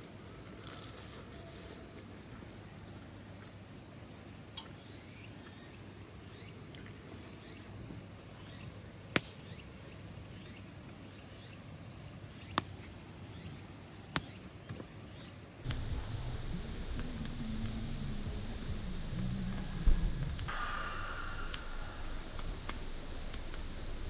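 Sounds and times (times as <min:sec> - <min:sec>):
sharp pops: 0:09.1 - 0:09.9, 0:12.4 - 0:14.9, 0:20.4 - 0:24.0.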